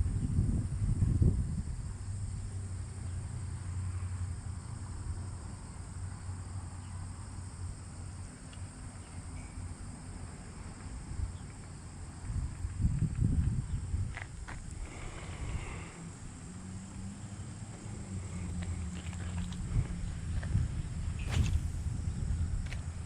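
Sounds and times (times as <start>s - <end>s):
wind rumbling on microphone: 0.0s - 2.8s, 12.2s - 16.5s, 17.8s - 23.0s
insects droning: 0.0s - 23.0s.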